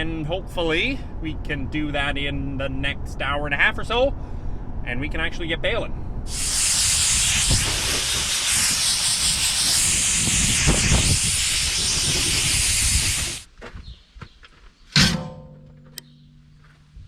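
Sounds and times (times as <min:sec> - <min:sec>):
pressurized air hiss: 0:06.3 - 0:13.5.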